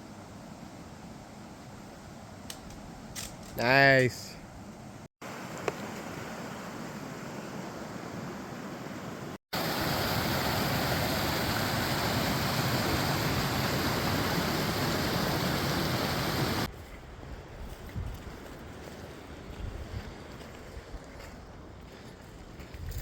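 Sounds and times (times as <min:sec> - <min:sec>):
waterfall roaring: 0:09.6 - 0:16.7.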